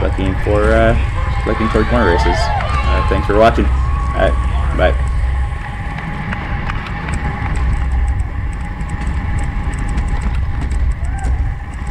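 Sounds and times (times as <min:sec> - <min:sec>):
faint steady whine: 0:00.0 - 0:11.9
wind rumbling on microphone: 0:00.0 - 0:11.9
light ticks: 0:05.8 - 0:11.9.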